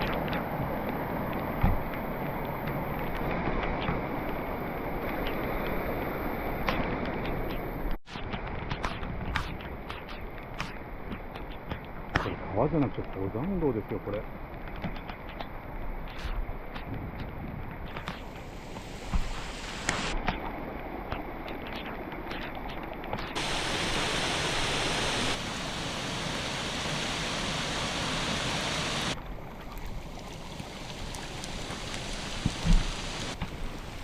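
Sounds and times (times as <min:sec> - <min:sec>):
runoff water rushing: 0:00.0 - 0:07.9, 0:17.2 - 0:21.0, 0:23.4 - 0:34.0
steady rain: 0:00.0 - 0:08.0, 0:17.4 - 0:21.4, 0:23.4 - 0:34.0.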